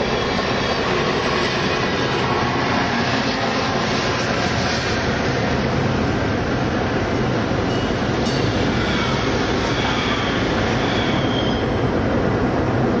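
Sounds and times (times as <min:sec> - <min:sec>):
road noise: 0:00.0 - 0:13.0
train rumbling: 0:00.0 - 0:13.0
faint high squeal: 0:07.6 - 0:11.9.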